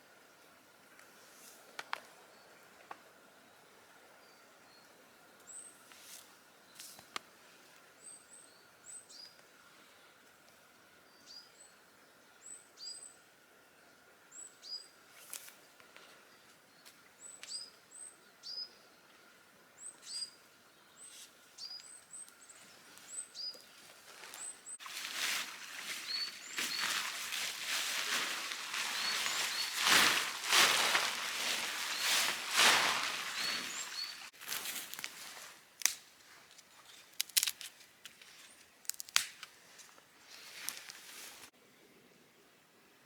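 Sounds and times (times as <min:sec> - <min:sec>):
small birds chirping: 0:19.8 - 0:34.4
close-up rustling and crunching: 0:23.7 - 0:41.5.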